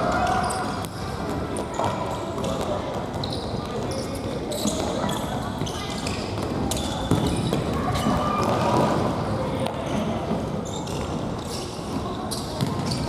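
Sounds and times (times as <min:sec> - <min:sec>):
ball kicks and bounces: 0:12.6 - 0:13.0.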